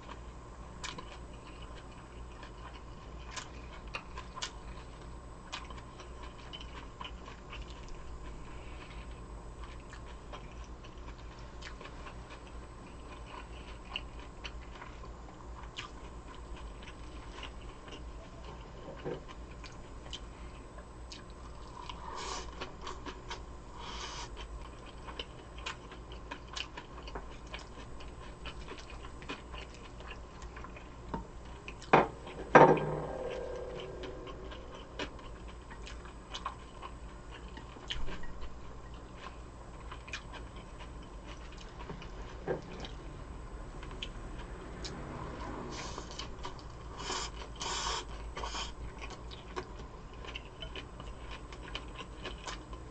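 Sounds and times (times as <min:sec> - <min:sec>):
chewing with mouth clicks: 0:00.0 - 0:32.4, 0:33.1 - 0:43.1, 0:43.8 - 0:52.9
dish set down knocks: 0:32.0 - 0:33.1.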